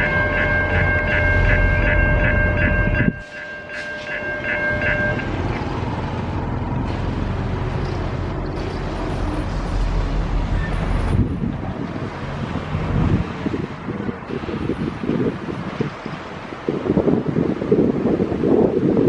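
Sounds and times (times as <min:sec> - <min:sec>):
level crossing bell ringing: 0:00.0 - 0:05.4
loud low train rumble: 0:00.0 - 0:19.0
wind: 0:00.0 - 0:19.0.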